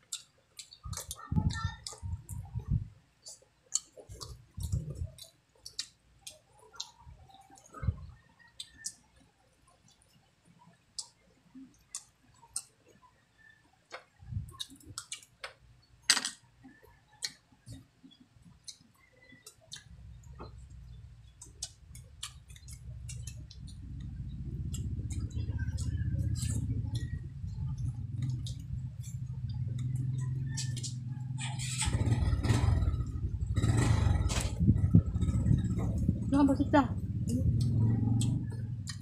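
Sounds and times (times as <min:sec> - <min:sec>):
low thuds: 0:31.9 - 0:39.0.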